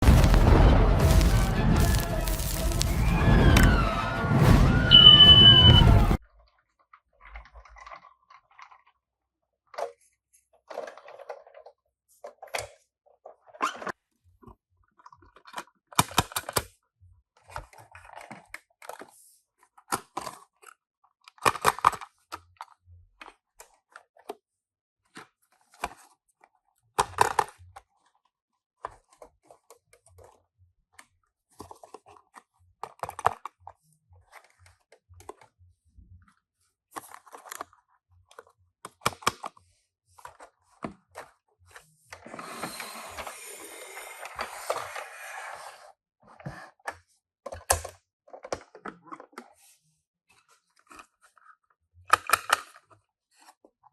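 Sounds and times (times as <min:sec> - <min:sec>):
small plastic and metal parts clicking: 0:52.1 - 0:52.8.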